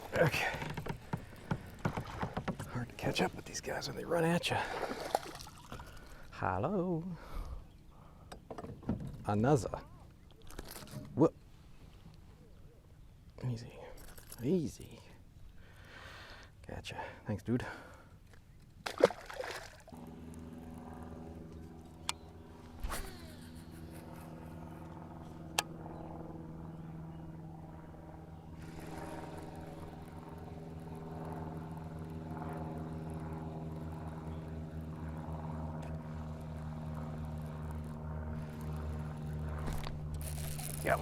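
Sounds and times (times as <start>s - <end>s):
electric motor humming: 28.4s - 41.0s.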